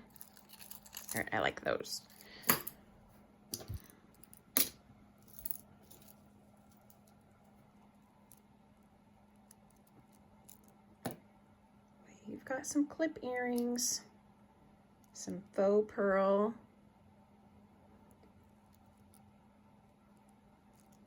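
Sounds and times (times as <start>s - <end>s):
jewelry clicking and clinking: 0.0s - 1.4s, 2.0s - 2.8s, 3.5s - 7.2s, 9.3s - 11.2s
faint steady hum: 0.0s - 21.0s.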